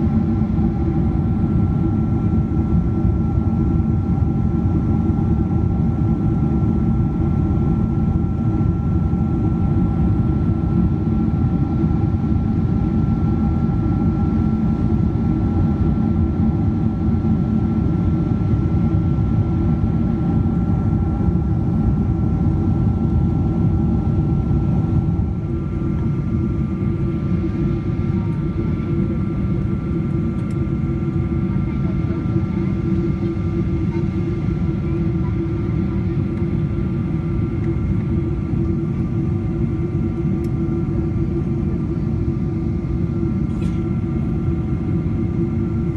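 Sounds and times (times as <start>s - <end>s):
airplane cabin rumble: 0.0s - 45.9s
faint engine whine: 0.0s - 45.9s.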